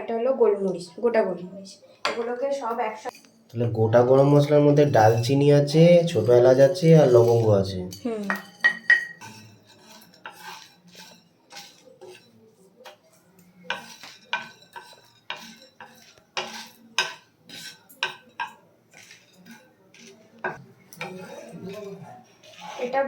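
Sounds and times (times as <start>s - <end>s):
spatula scraping spices in pan: 3.1s - 23.0s
spatula tapping pan: 8.3s - 21.4s.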